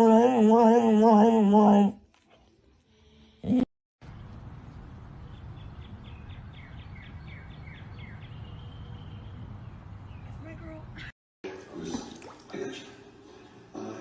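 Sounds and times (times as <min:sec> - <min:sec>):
bird chirping: 0:04.1 - 0:10.7.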